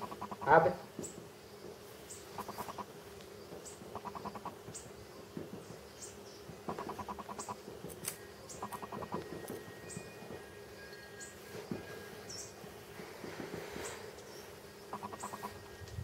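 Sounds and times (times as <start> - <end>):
bird trills: 8.2 - 12.6, 14.8 - 15.8.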